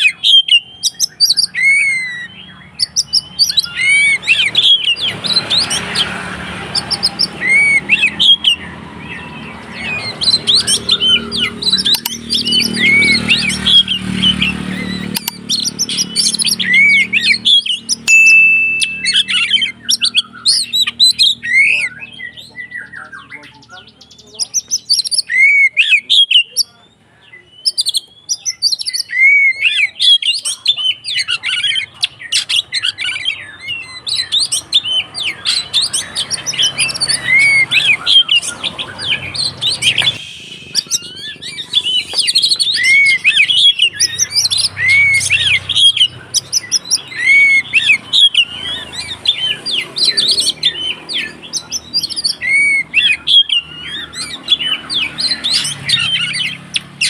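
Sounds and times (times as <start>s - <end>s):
bird singing varied whistles: 0.0s - 5.8s, 6.7s - 23.1s, 32.3s - 56.9s.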